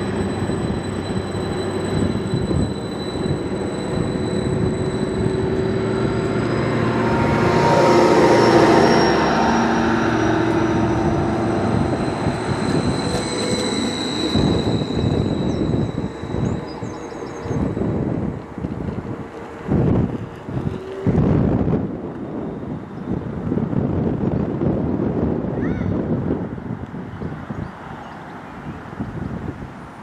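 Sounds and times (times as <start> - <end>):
high wheel squeal: 0.0 - 23.2
diesel train running past: 0.0 - 25.4.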